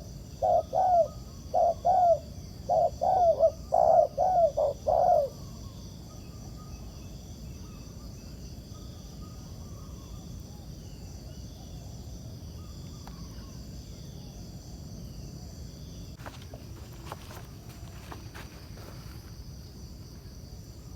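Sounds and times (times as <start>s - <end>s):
faint bird calls: 0.0s - 6.9s
insects chirring: 0.0s - 20.9s.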